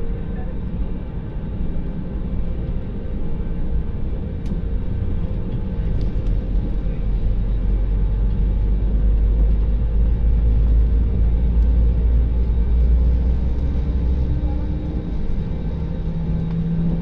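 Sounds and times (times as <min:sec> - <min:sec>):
airliner engines rumbling in cabin: 0:00.0 - 0:17.0.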